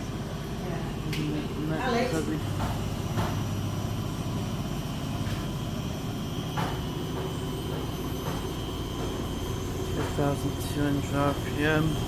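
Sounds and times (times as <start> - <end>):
washing machine spinning: 0.0 - 12.0.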